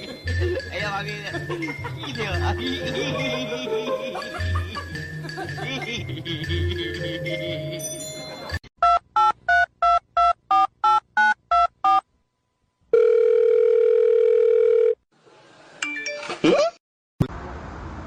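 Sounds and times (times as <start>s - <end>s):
telephone ringing tone: 12.9s - 15.0s.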